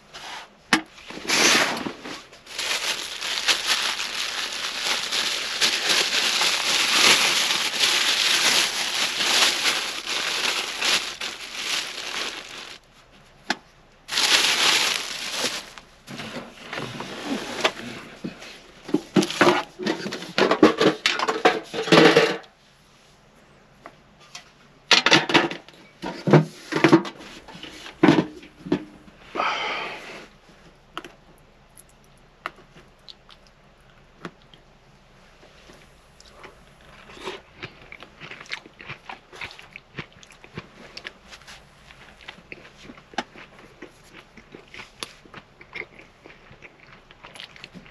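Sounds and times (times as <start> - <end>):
plastic packaging crinkling: 1.5 - 12.8, 14.1 - 15.9, 19.1 - 20.2
containers clattering: 1.8 - 12.8.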